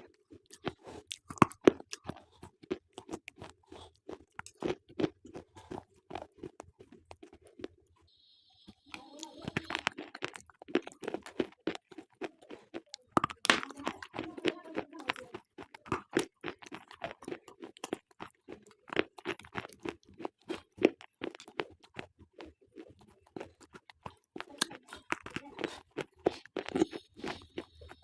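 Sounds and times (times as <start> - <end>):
chewing sound: 0.0 - 28.0
slate pencils crunching: 9.0 - 28.0.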